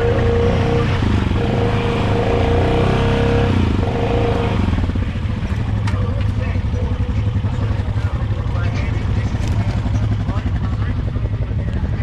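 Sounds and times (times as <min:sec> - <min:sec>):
quad engine at high revs: 0:00.0 - 0:05.9.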